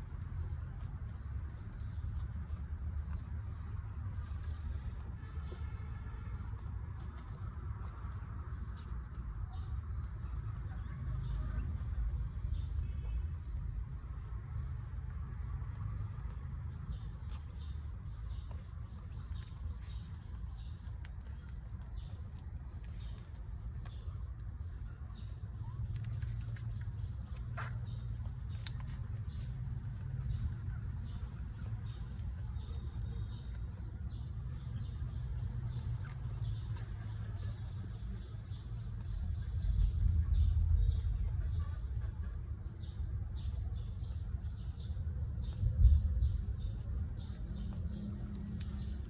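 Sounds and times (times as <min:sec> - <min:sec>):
low rumble: 0:07.0 - 0:49.0
puppies squeaking: 0:17.0 - 0:38.3.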